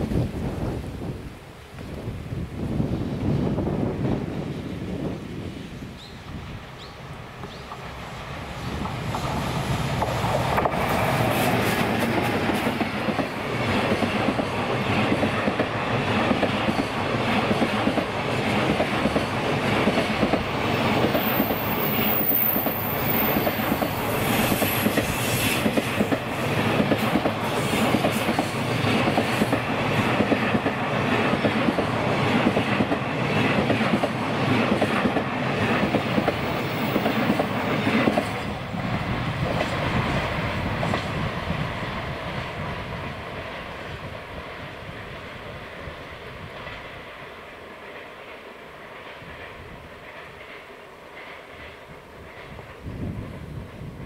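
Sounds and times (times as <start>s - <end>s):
freight train passing: 0.0s - 54.0s
wheels clickety-clack on rail joints: 6.2s - 54.0s
train wheels squealing: 21.2s - 26.1s.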